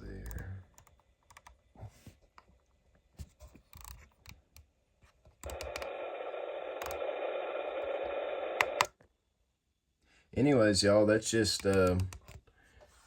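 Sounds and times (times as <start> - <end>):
faint clicks and scratches: 0.0 - 8.9, 11.3 - 13.0
faint steady tones: 5.4 - 9.0
radio static hiss: 5.5 - 8.9.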